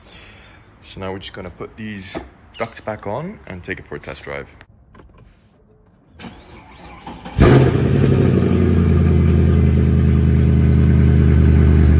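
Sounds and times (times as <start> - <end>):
car engine starting and idling: 6.2 - 11.9.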